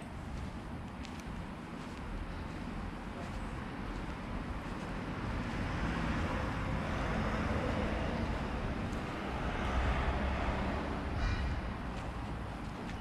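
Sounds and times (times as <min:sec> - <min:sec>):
vehicle passing by: 0:04.4 - 0:13.0.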